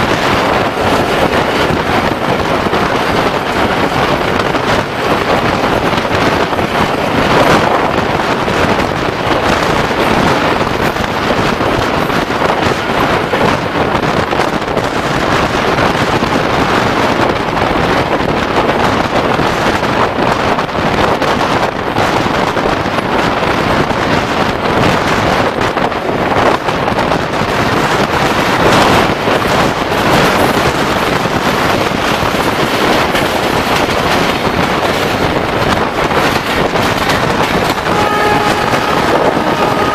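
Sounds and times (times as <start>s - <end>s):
train running noise: 0.0s - 39.9s
wind buffeting microphone: 0.0s - 39.9s.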